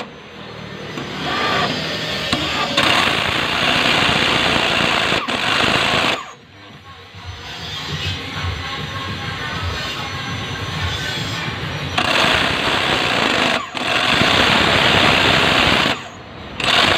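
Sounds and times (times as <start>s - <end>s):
jigsaw cutting plywood: 1.0s - 6.4s, 12.0s - 16.9s.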